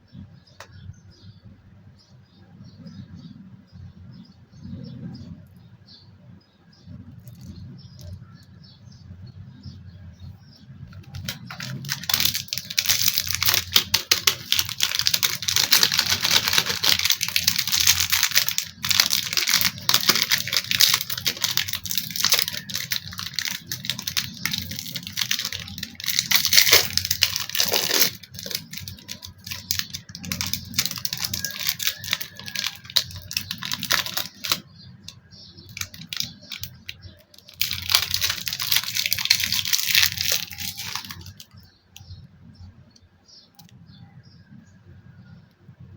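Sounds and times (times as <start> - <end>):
packaging crinkling and tearing: 7.2 - 8.2, 11.0 - 41.6
plastic clicking: 10.9 - 42.2.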